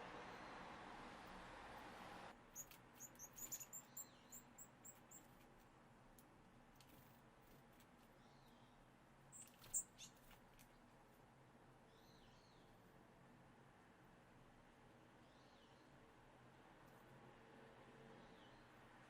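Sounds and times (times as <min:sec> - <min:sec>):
small birds chirping: 0:02.5 - 0:05.4, 0:08.2 - 0:10.9.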